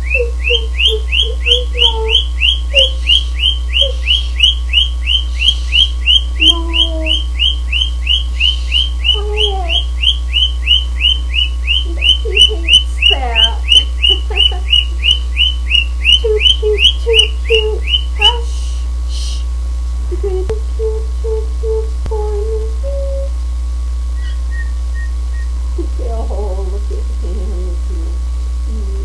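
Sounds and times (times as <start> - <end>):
cockatiel chirping: 0.0 - 18.3, 24.2 - 25.5
steady low hum: 0.0 - 29.0.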